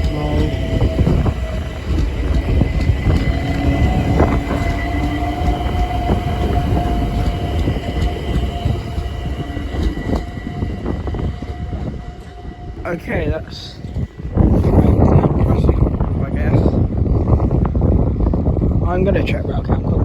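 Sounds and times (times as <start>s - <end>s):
wheels clicking over rail joints: 0.0s - 10.6s
train rumble with electric whine: 0.0s - 20.0s.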